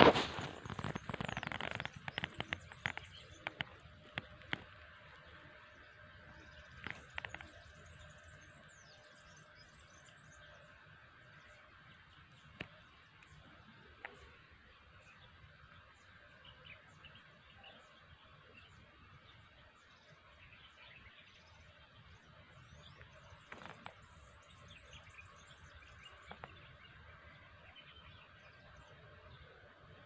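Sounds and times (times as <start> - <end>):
small bird chirps: 0.1 - 4.8, 5.5 - 10.7.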